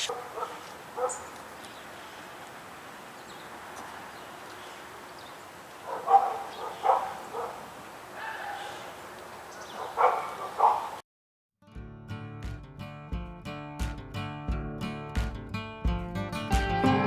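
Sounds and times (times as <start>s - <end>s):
dog barking: 0.0s - 1.3s, 5.8s - 8.9s, 9.6s - 11.0s
background hiss: 0.0s - 10.9s.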